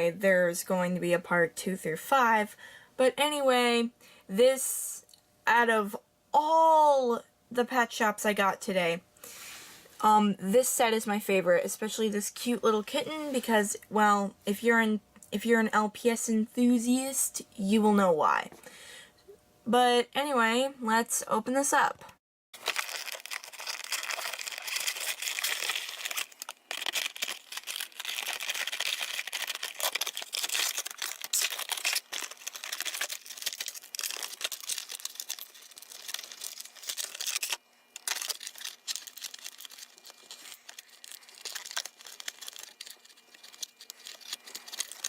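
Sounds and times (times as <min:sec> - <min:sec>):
plastic packaging crinkling and tearing: 0:22.6 - 0:45.0.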